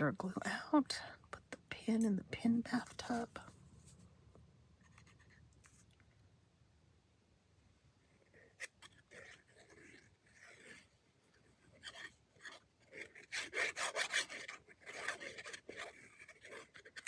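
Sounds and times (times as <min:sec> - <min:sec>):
paper rubbing and scraping on a surface: 0:08.6 - 0:10.9, 0:11.5 - 0:17.0.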